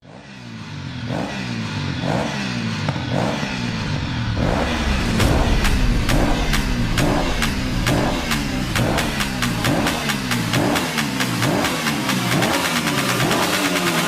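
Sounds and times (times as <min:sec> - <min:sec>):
motorcycle engine revving: 0:00.0 - 0:14.0
sharp evenly spaced beats: 0:03.1 - 0:14.0.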